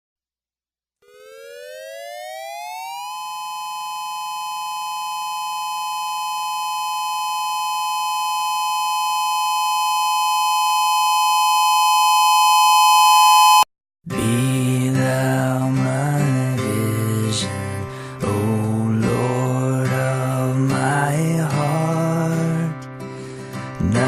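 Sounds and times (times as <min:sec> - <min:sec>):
two-tone siren wailing: 0:01.0 - 0:13.6.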